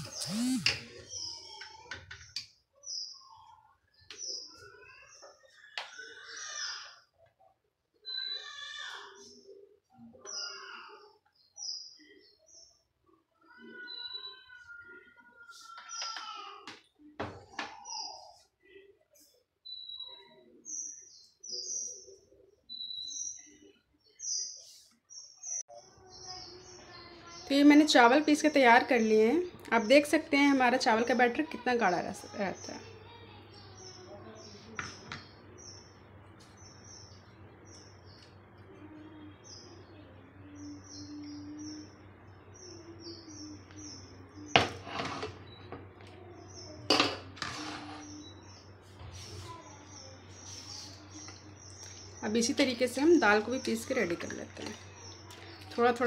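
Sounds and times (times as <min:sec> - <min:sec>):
bird chirping: 0:00.0 - 0:07.1, 0:33.5 - 0:46.9
small bird chirping: 0:00.0 - 0:07.1
metal kitchenware clattering: 0:46.8 - 0:48.1.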